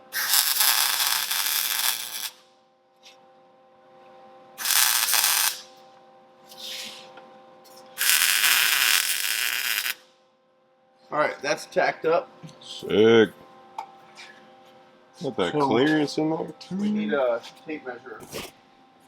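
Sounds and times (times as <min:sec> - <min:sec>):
crackling arc welding: 0:00.0 - 0:02.5, 0:04.6 - 0:05.8, 0:06.5 - 0:06.8, 0:07.7 - 0:10.2
faint steady hum: 0:00.0 - 0:19.0.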